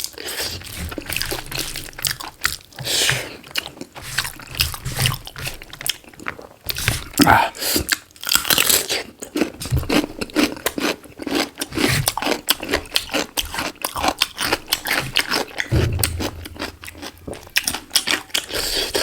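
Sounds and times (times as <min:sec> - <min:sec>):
biting and chewing: 0:00.0 - 0:19.0
crunching: 0:00.2 - 0:07.2, 0:10.2 - 0:19.0
dull low thump: 0:00.6 - 0:02.5, 0:15.6 - 0:18.2.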